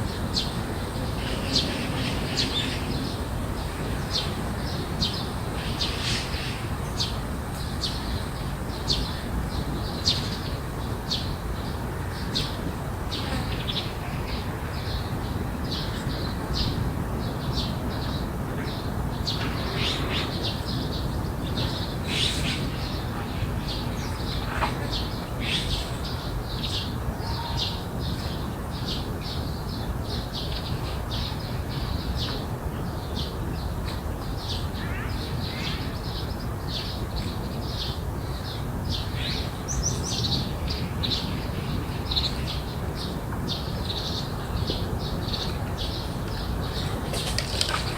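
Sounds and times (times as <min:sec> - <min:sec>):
birds chirping: 0:34.4 - 0:47.9.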